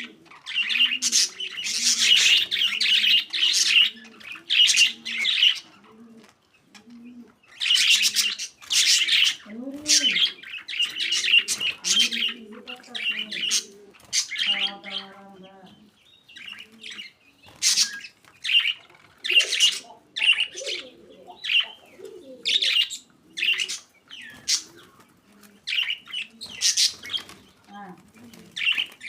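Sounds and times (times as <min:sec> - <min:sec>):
budgerigars chirping: 0:00.0 - 0:27.8, 0:28.6 - 0:29.0
soft bird chatter: 0:00.0 - 0:29.0.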